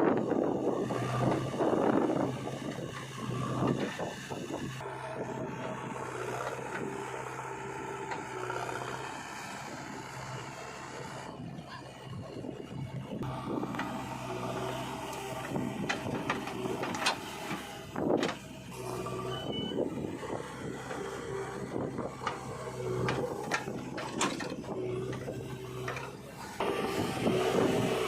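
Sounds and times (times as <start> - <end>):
diesel machinery running: 0.0 - 28.0
metal knocks and clanks: 22.0 - 26.2.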